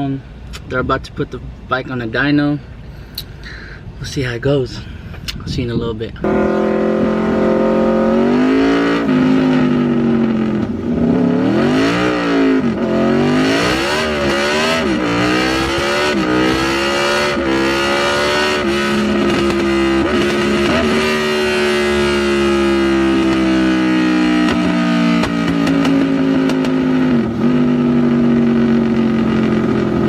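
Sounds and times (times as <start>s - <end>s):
motorcycle engine revving: 6.2s - 30.0s.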